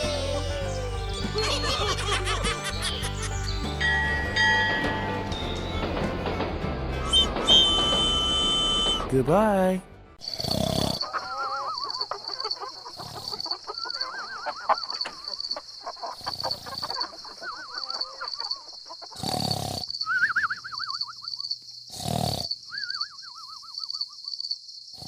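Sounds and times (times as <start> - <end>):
falling quavering animal calls: 0.0 - 4.1, 10.2 - 19.4
rapidly pulsing high chirping: 19.9 - 21.6.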